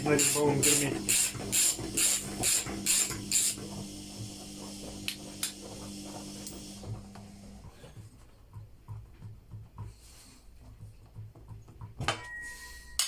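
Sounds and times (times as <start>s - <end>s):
ratchet wrench strokes: 0.2s - 3.6s.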